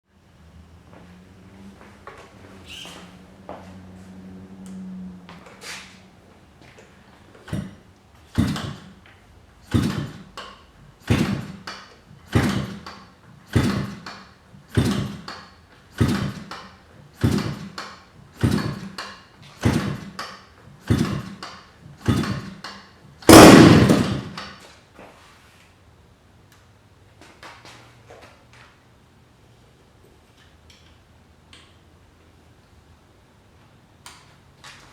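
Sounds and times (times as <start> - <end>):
engine turned over by propeller: 7.4 - 9.0, 9.6 - 24.5
model engine firing and running: 8.3 - 8.9, 9.6 - 10.4, 11.0 - 15.4, 16.0 - 16.6, 17.2 - 17.8, 18.4 - 19.0, 19.6 - 20.2, 20.8 - 21.4, 22.0 - 22.6, 23.2 - 24.5.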